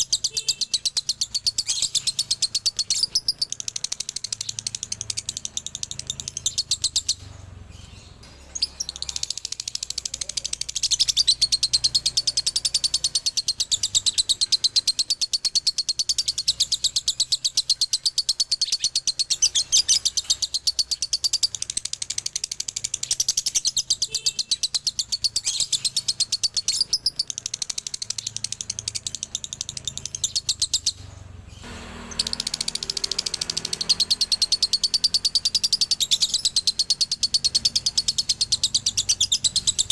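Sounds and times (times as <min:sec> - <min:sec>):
lovebird chattering: 0:00.0 - 0:39.9.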